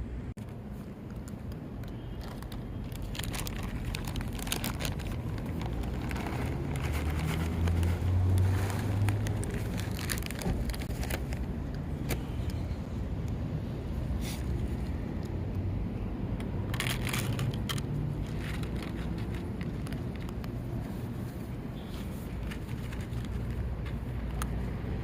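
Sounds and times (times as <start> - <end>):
outdoor background noise: 0.0 - 25.0
passing vehicle rumble: 2.2 - 25.0
close crackling clicks: 16.4 - 20.6.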